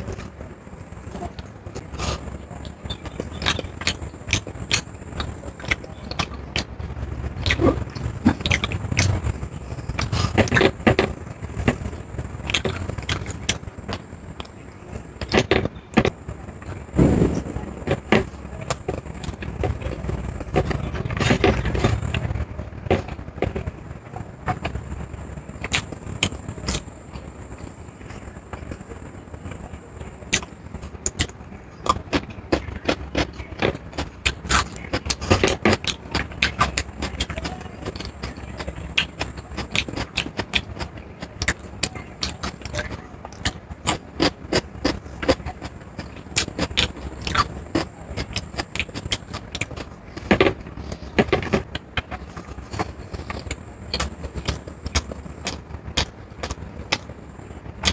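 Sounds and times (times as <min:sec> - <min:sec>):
low steady hum: 0:00.0 - 0:57.9
steady low rumble: 0:00.0 - 0:57.9
chewing and lip smacks: 0:07.4 - 0:09.3, 0:25.6 - 0:27.2, 0:30.3 - 0:57.1
sharp crackles: 0:29.4 - 0:57.9.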